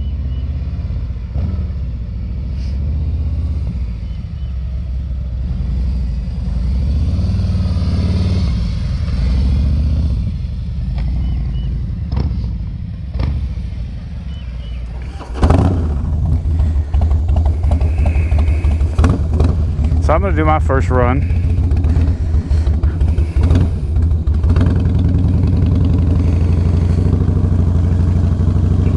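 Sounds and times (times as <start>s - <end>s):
motorcycle engine rumbling: 14.5s - 28.9s.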